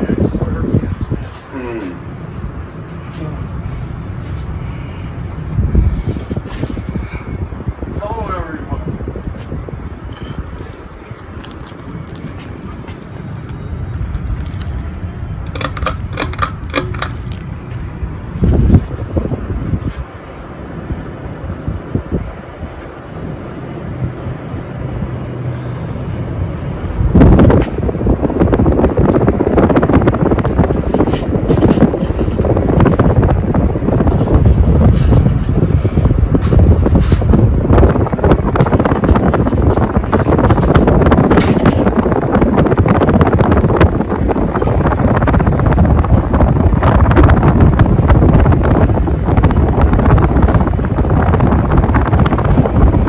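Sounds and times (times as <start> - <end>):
wind buffeting microphone: 3.6 - 12.9, 26.4 - 53.0
scattered clicks: 15.5 - 17.5.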